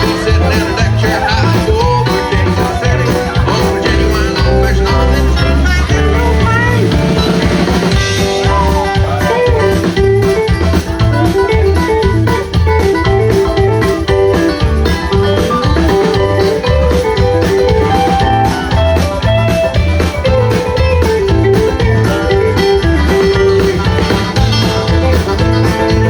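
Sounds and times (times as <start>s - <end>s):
electric guitar line: 0.0s - 26.0s
rock band playing: 0.0s - 26.0s.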